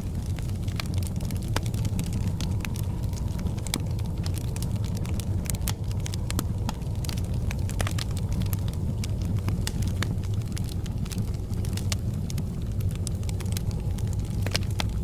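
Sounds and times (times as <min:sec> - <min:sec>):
fire crackling and popping: 0:00.0 - 0:15.0
low roar of fire: 0:00.0 - 0:15.0.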